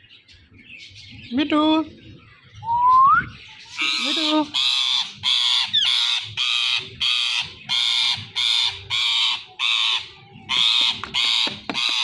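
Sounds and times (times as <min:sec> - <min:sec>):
parrot squawking: 0:03.7 - 0:12.0.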